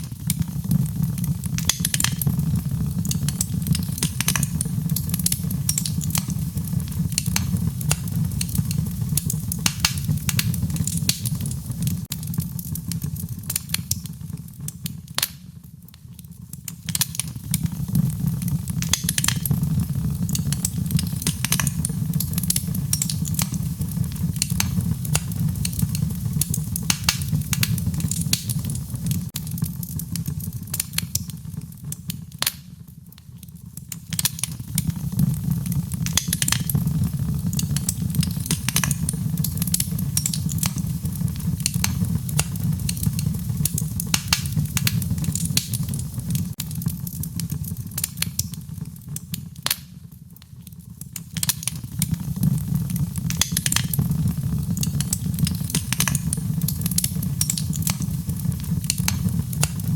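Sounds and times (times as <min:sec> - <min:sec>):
wood fire crackling: 0:00.0 - 0:59.9
low rumble: 0:36.6 - 0:40.1.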